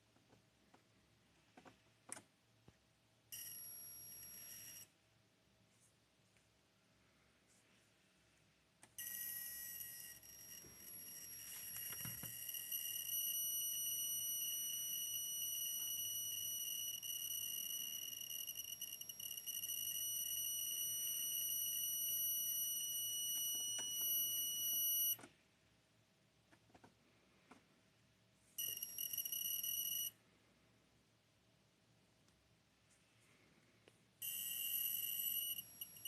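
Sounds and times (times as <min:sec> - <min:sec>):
monitor high-pitched whine: 0:09.0 - 0:25.2, 0:34.2 - 0:36.0.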